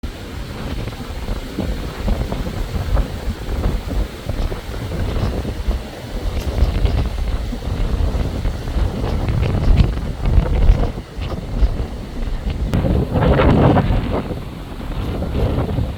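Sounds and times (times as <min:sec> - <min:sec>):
wind buffeting microphone: 0:00.0 - 0:15.9.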